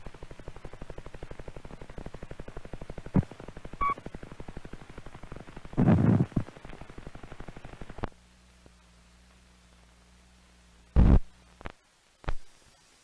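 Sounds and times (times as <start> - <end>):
rapid even ticking: 0.0 - 8.1
low steady hum: 0.0 - 13.0
brief beep: 3.8 - 4.0.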